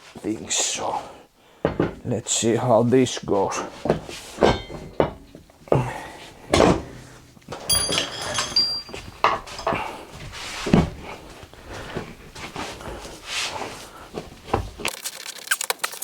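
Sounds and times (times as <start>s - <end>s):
bright metallic ring: 7.7s - 9.8s.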